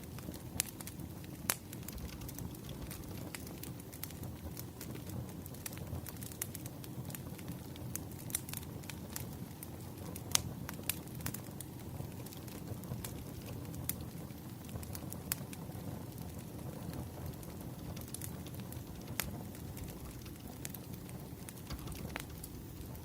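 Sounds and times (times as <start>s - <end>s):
wood fire crackling: 0.0s - 23.0s
sharp pops and snaps: 0.2s - 6.6s, 16.9s - 23.0s.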